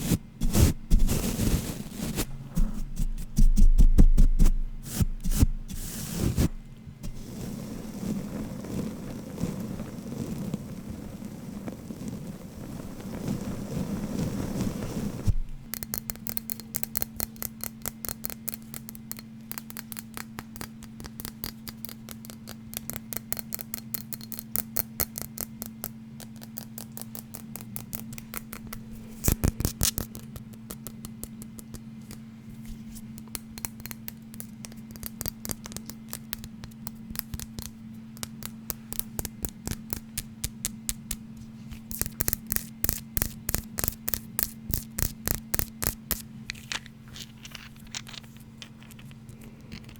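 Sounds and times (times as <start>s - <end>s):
low electrical hum: 0.0s - 49.9s
fast tapping on hard object: 15.7s - 32.2s, 33.2s - 41.2s.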